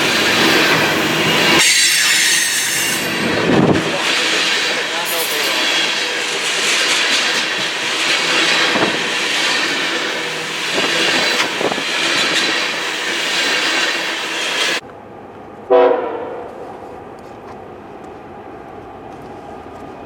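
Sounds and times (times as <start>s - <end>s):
train rumble and rail clatter: 0.0s - 20.0s
locomotive horn blast: 15.7s - 16.7s.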